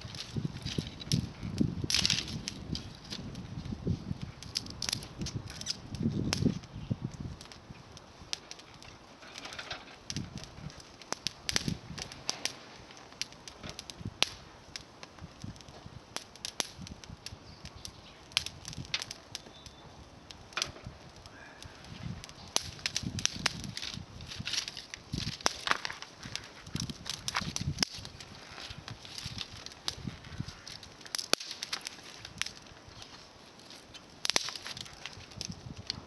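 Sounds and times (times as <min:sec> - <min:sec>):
twigs rustling: 0:00.0 - 0:06.8, 0:20.6 - 0:36.0
twig fire crackling: 0:00.0 - 0:36.0.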